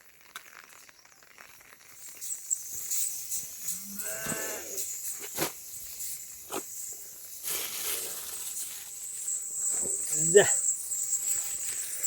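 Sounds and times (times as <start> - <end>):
high-pitched insect buzz: 0.7 - 12.0
rustling: 3.1 - 12.0.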